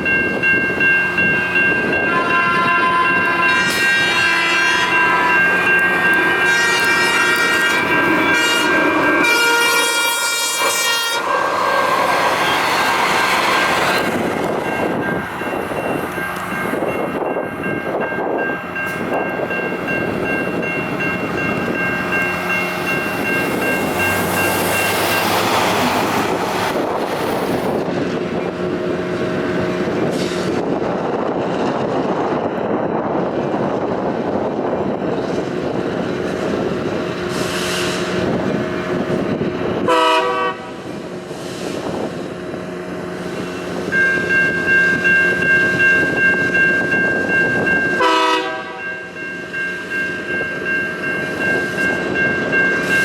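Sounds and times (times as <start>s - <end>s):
ringing warning tone: 0.0s - 10.6s
light rail train running: 0.0s - 53.0s.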